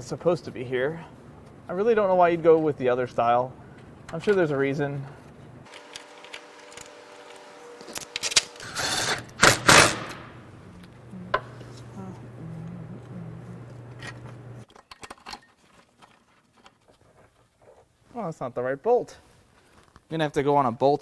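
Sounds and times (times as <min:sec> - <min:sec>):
power tool motor whirring: 0:05.7 - 0:10.1.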